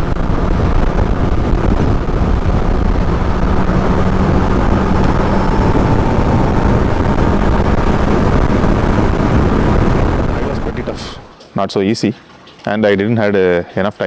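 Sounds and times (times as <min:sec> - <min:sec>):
motorcycle engine cruising: 0:00.0 - 0:11.3
wind and road noise: 0:00.0 - 0:11.4.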